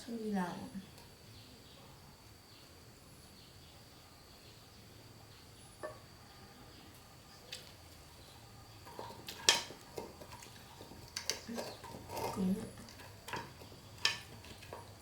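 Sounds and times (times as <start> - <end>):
tableware clinking: 8.9 - 14.9.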